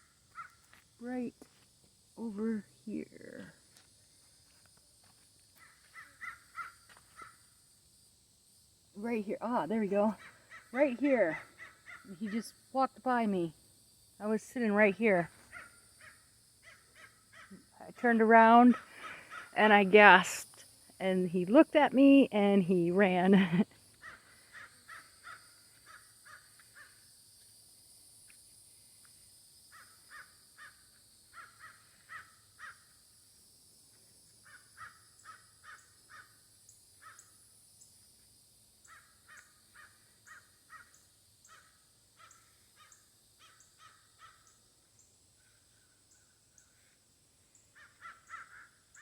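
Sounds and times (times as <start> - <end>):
crow cawing: 5.6 - 7.4, 11.6 - 12.1, 24.0 - 27.0, 31.4 - 32.8, 38.9 - 44.5, 47.8 - 49.0.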